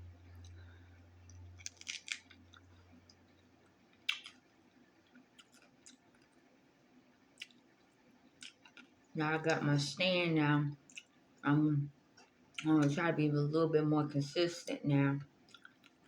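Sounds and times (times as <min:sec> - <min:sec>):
faint low hum: 0:00.0 - 0:16.0
person chewing food: 0:00.3 - 0:06.5, 0:07.4 - 0:09.0, 0:10.8 - 0:11.2, 0:15.4 - 0:16.0.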